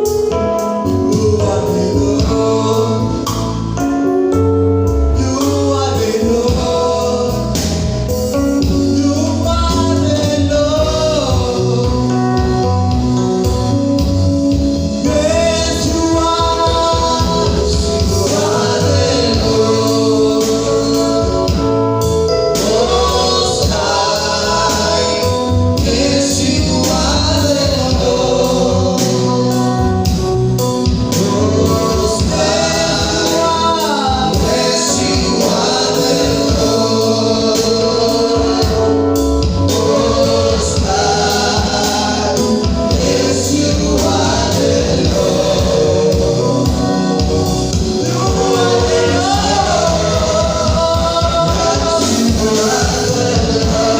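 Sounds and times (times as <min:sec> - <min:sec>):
bass keyboard and beat: 0:00.0 - 0:53.9
lead and choir singing: 0:01.1 - 0:03.8, 0:05.2 - 0:13.6, 0:15.0 - 0:53.9.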